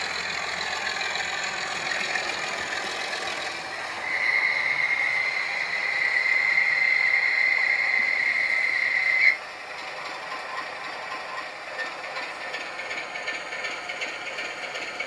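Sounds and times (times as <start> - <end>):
model train whistle: 4.0 - 9.4.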